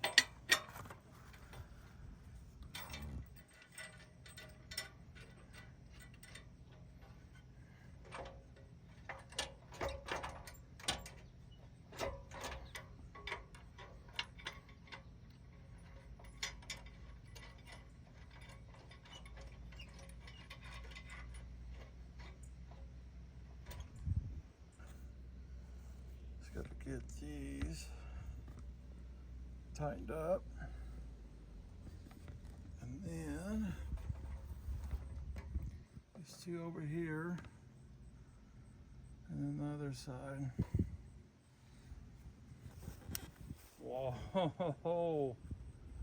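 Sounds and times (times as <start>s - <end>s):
metal tools clinking: 0.0s - 1.7s, 2.5s - 11.3s, 11.9s - 22.8s.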